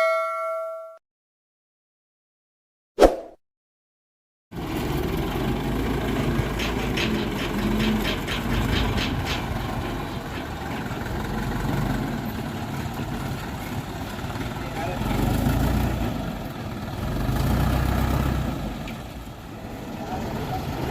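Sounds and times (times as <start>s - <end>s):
dump truck engine idling: 4.6s - 17.2s.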